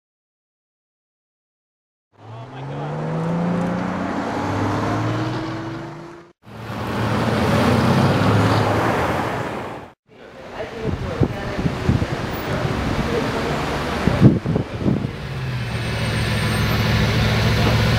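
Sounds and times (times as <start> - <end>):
car engine accelerating: 2.2 - 9.1, 12.3 - 17.9.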